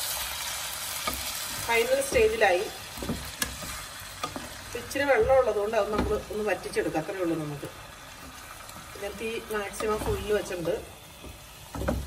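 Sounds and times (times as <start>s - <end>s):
meat sizzling in a pot: 0.0s - 12.0s
spatula scraping a pan: 0.9s - 6.4s.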